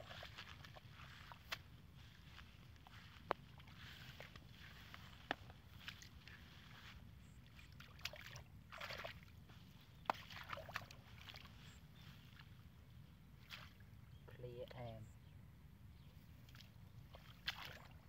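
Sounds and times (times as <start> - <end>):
hands squelching in wet mud: 0.0 - 9.3, 10.0 - 12.5, 16.4 - 18.0.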